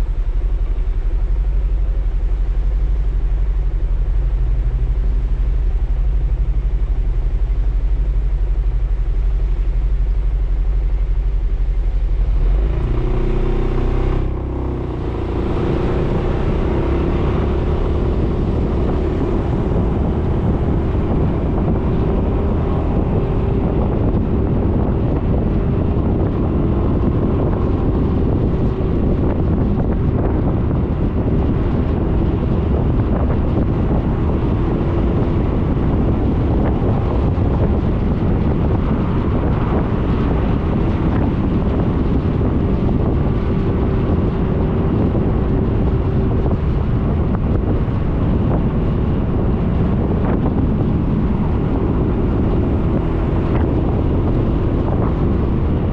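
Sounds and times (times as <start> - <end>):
scooter engine humming: 0.0 - 55.9
steady whine: 0.0 - 55.9
wind and road noise: 0.0 - 55.9.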